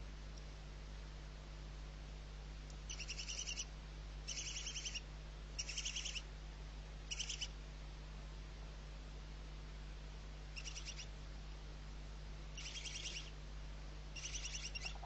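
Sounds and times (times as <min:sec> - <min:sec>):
low steady hum: 0:00.0 - 0:15.0
owl chittering call: 0:02.9 - 0:03.7, 0:04.3 - 0:05.0, 0:05.6 - 0:06.2, 0:07.1 - 0:07.5, 0:10.6 - 0:11.1, 0:12.6 - 0:13.3, 0:14.2 - 0:15.0.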